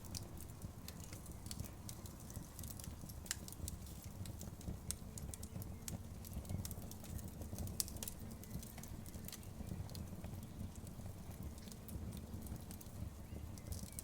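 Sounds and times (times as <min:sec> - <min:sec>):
fire crackling and popping: 0:00.0 - 0:14.0
wood fire rumbling: 0:00.0 - 0:14.0.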